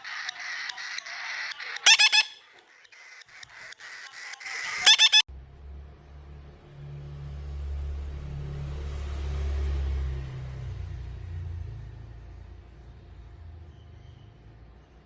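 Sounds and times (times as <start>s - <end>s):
vehicle engine rumbling: 4.5s - 15.0s.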